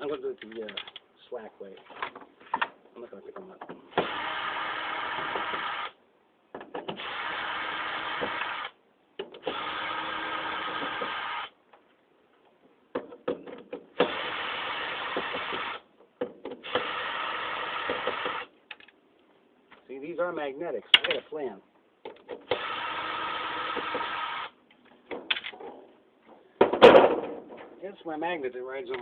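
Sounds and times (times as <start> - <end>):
power drill running: 7.0 - 8.7, 9.4 - 11.5, 14.0 - 15.8, 16.6 - 18.5, 22.5 - 24.6
metallic clicks of loose screws: 18.7 - 19.0.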